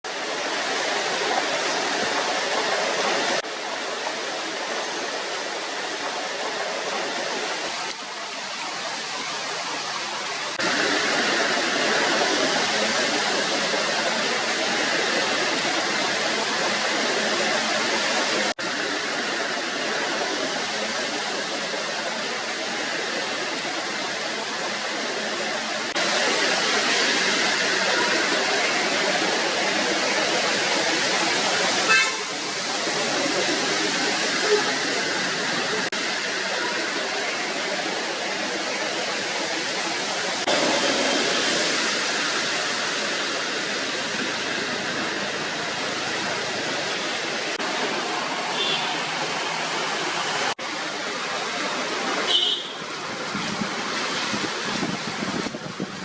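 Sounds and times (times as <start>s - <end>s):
floodwater rushing: 0.0s - 56.0s.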